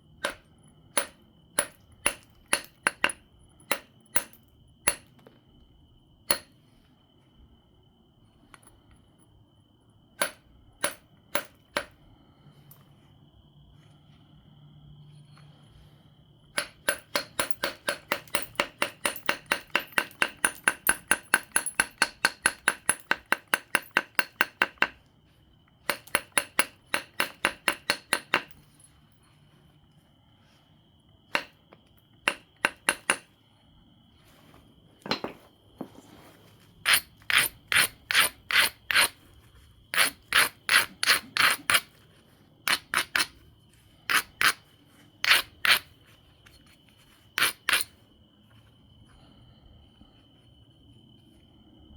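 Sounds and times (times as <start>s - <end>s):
stone scraping stone edge: 36.8s - 39.2s, 39.9s - 42.0s, 42.7s - 43.4s, 44.0s - 46.0s, 47.3s - 48.0s.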